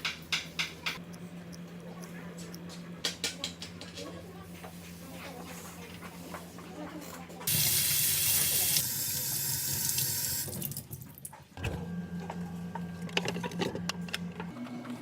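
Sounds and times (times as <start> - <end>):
water running from tap: 7.5 - 11.3.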